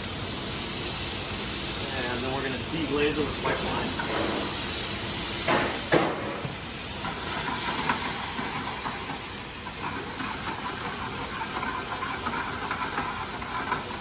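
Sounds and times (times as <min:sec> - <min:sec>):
butter sauce sizzling in a pan: 0:02.9 - 0:14.0.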